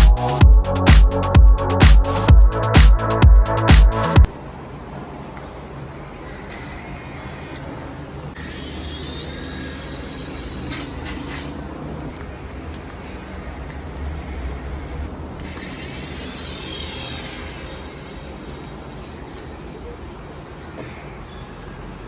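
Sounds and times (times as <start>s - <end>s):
toy helicopter motor buzzing: 6.5s - 7.7s, 8.4s - 22.0s.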